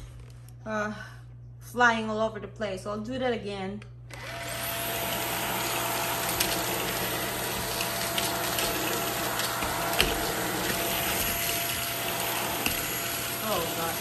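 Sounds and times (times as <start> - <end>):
stick vacuum running: 4.1 - 14.0.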